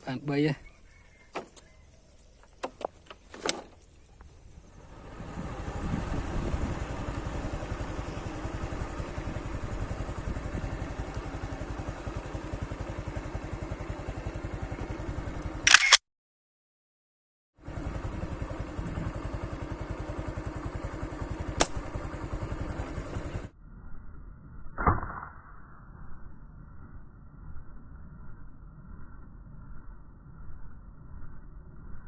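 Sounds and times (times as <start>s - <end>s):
small engine putter: 2.4s - 4.0s, 15.4s - 16.0s
sharp clicks: 15.7s - 16.0s.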